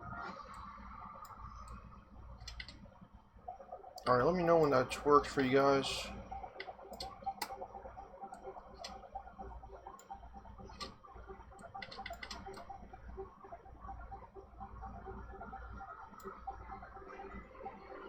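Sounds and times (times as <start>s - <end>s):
computer clicks: 6.6s - 7.6s, 11.6s - 12.7s.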